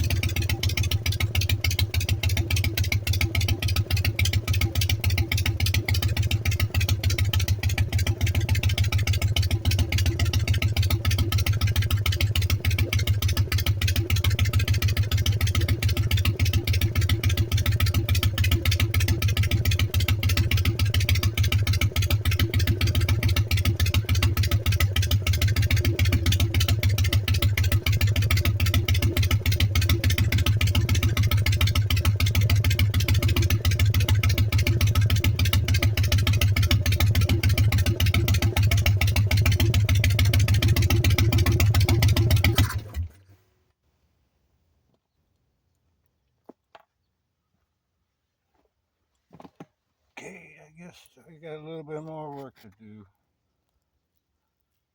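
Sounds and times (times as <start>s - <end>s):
motorcycle engine idling: 0.0s - 43.3s.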